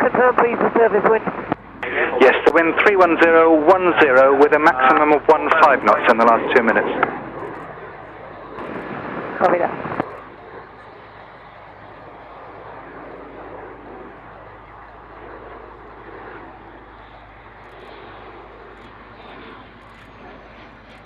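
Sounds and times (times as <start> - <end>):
aircraft engine rush and hum: 0.0 - 21.0.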